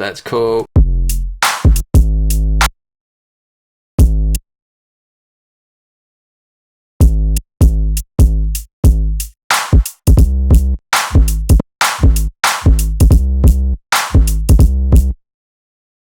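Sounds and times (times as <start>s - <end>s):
drum machine kick and bass: 0.8s - 2.6s, 4.0s - 4.4s, 7.0s - 15.2s
snare or clap hits: 1.4s - 1.8s, 9.5s - 9.9s, 11.0s - 12.8s, 14.0s - 14.4s.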